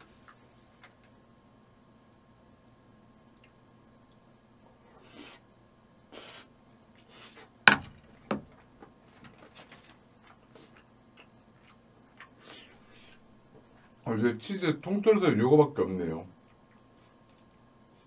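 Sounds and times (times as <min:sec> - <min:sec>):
close-miked chewing: 0:08.6 - 0:14.1, 0:16.4 - 0:17.7.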